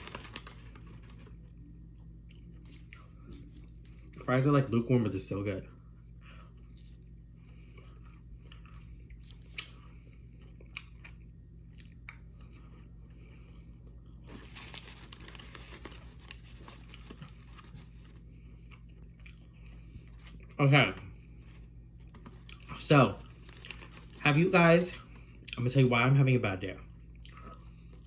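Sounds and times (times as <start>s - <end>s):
low hum: 0.0s - 26.0s
close-miked chewing: 15.5s - 20.6s, 22.0s - 24.2s.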